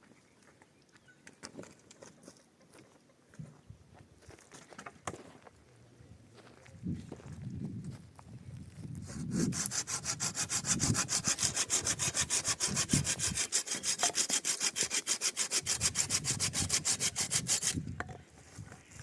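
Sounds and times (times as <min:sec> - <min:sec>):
hand saw cutting wood: 0:09.0 - 0:17.8.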